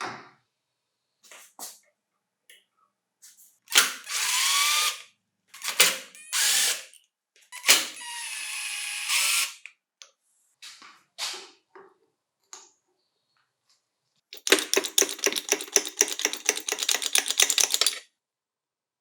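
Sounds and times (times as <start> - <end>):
power drill whining: 4.0 - 5.0, 5.6 - 6.9, 7.6 - 9.6.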